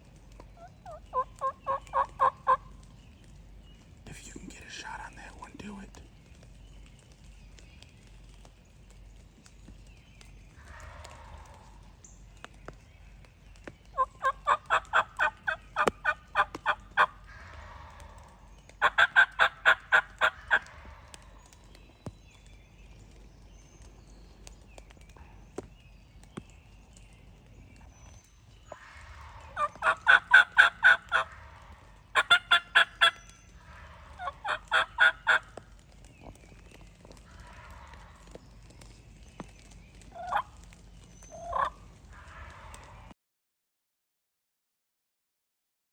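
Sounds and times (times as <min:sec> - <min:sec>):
turkey yelping: 0:00.6 - 0:02.8, 0:13.9 - 0:21.6, 0:28.7 - 0:35.6, 0:37.2 - 0:38.4, 0:40.1 - 0:40.6, 0:41.3 - 0:43.0.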